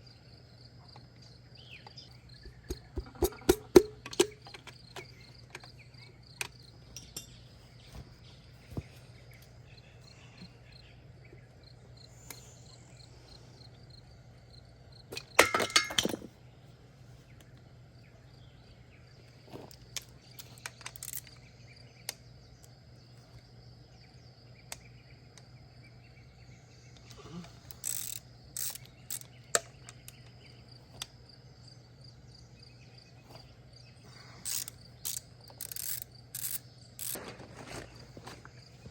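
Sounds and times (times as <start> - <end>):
crickets chirping: 0.0 - 38.9
clinks of metal engine parts: 2.4 - 7.6, 15.1 - 16.3, 19.5 - 21.5
loud clatter of metal parts: 15.1 - 16.3.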